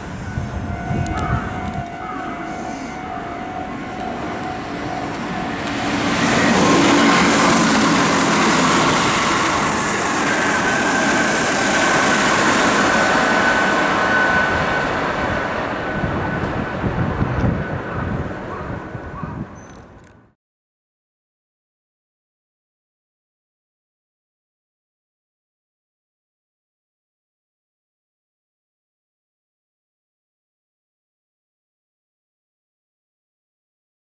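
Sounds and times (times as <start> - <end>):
steady high tone: 0.0 - 19.1
train rushing past: 0.0 - 19.6.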